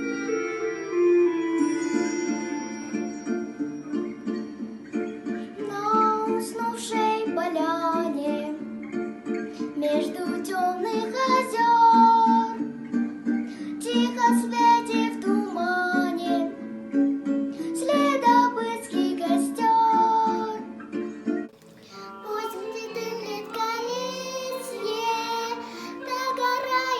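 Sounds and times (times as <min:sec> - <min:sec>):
plucked string accompaniment: 0:00.0 - 0:26.9
child singing: 0:05.6 - 0:08.6, 0:09.8 - 0:12.6, 0:13.8 - 0:16.6, 0:17.7 - 0:20.6, 0:21.8 - 0:26.9.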